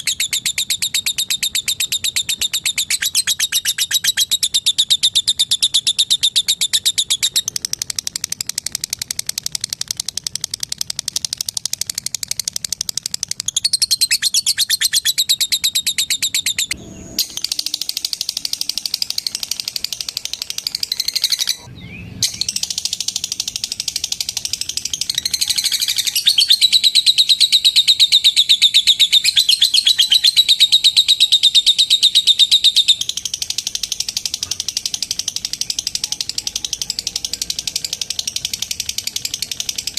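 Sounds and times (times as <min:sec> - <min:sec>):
lovebirds rattling chatter: 0:31.4 - 0:39.9.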